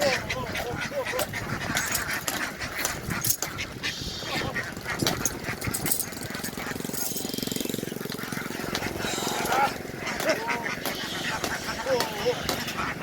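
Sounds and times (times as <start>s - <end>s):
ducks quacking: 0.0s - 13.0s
rapid even pulsing: 6.1s - 13.0s.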